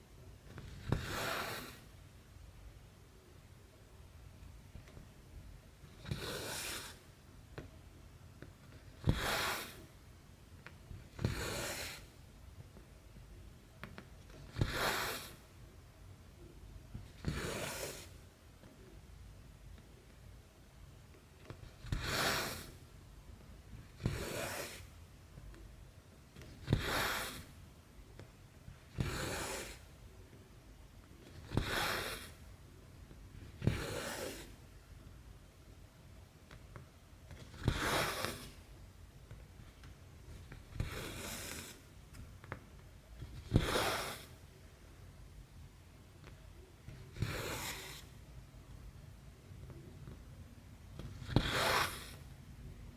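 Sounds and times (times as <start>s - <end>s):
thread rasping through fabric: 8.6s - 10.0s, 13.8s - 15.5s, 26.4s - 27.6s, 28.7s - 30.0s, 31.2s - 32.6s, 37.3s - 38.7s, 39.3s - 44.5s, 50.9s - 52.3s.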